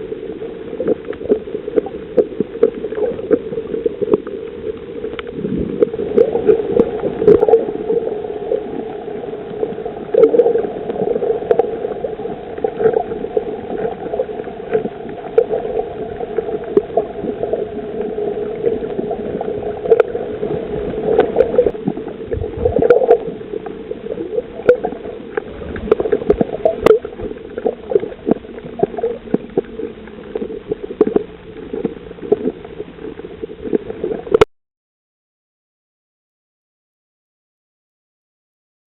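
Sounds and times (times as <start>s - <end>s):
lower underwater hum: 0.0s - 34.5s
sharp underwater clicks and crackles: 0.0s - 34.5s
steady underwater hum: 0.0s - 34.5s.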